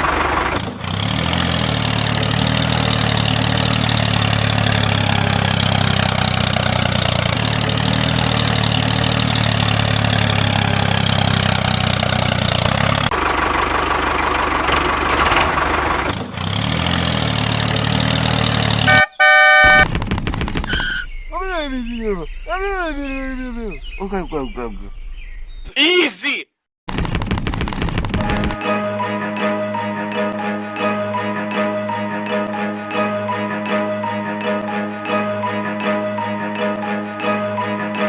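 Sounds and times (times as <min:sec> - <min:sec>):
tractor engine running: 0:00.0 - 0:21.1, 0:26.9 - 0:28.6
loud horn honk: 0:18.8 - 0:19.9, 0:20.7 - 0:21.1.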